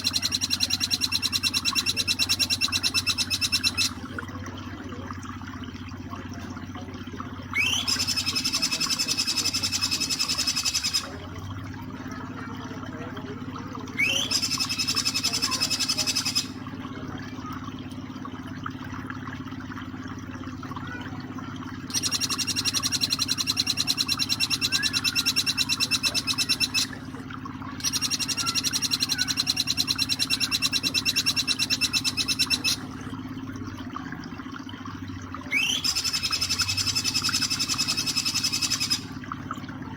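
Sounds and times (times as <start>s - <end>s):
bird rattling trills: 0.0s - 4.1s, 7.5s - 11.3s, 14.0s - 16.6s, 21.9s - 27.1s, 27.8s - 32.9s, 35.5s - 39.2s
running water: 0.0s - 39.9s.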